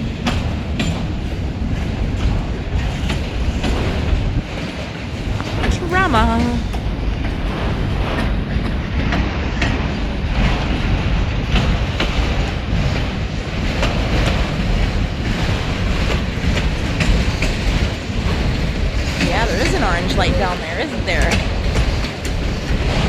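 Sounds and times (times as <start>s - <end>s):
wheels clacking on rail joints: 0.0s - 4.9s, 8.2s - 23.0s
freight train rumble: 0.0s - 23.0s.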